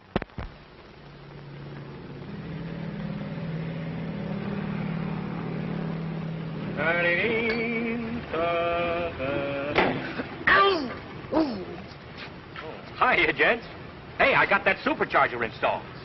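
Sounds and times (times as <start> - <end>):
low engine drone: 0.0 - 10.5.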